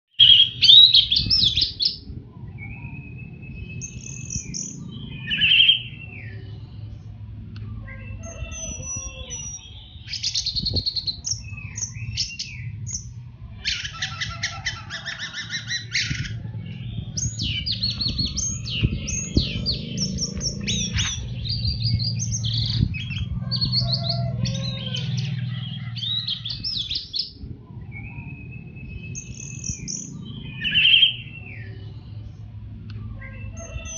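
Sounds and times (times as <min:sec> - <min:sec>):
thrush singing whistled phrases: 0:00.2 - 0:06.6
steady low background hum: 0:00.3 - 0:33.9.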